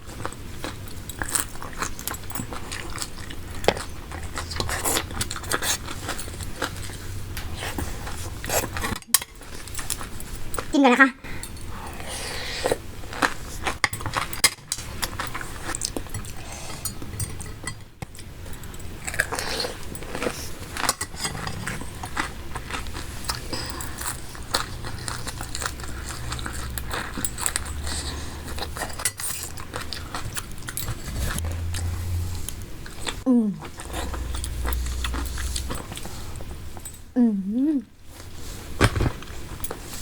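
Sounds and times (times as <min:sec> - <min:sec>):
wet chewing and crunching: 0:00.0 - 0:10.7, 0:11.6 - 0:37.2.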